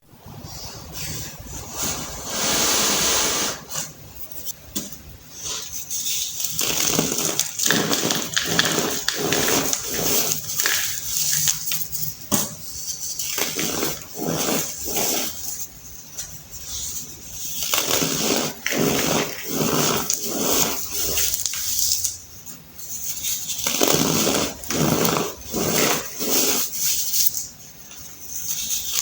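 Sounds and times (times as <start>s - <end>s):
baking soda crunching: 5.4s - 15.6s, 16.6s - 27.5s.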